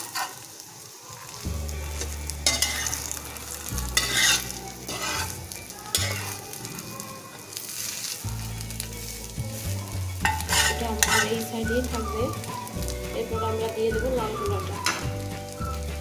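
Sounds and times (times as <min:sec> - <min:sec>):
paratha sizzling in a pan: 0:00.0 - 0:16.0
spatula scraping a pan: 0:02.0 - 0:06.6, 0:09.6 - 0:12.0.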